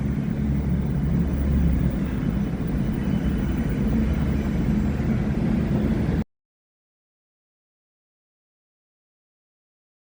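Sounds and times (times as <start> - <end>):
large vehicle engine rumbling: 0.0 - 6.2.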